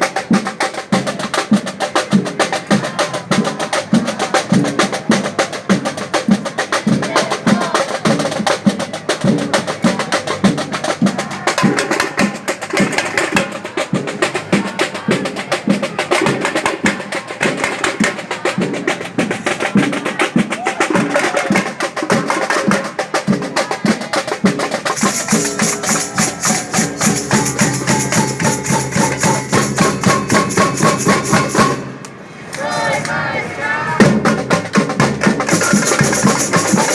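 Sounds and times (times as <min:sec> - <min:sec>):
marching band drums: 0:00.0 - 0:33.1, 0:33.9 - 0:36.9
band holding notes: 0:24.8 - 0:36.9.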